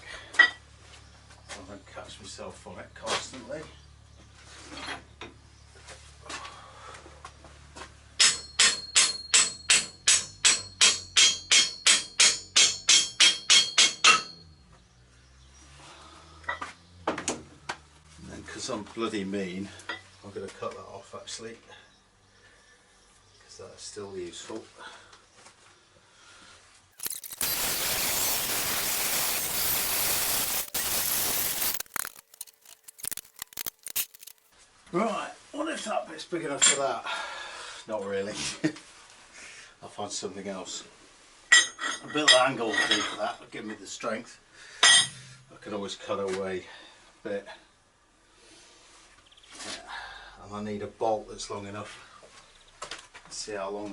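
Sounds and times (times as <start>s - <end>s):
hammer striking steel: 8.2s - 14.4s
power tool cutting metal: 27.0s - 34.5s.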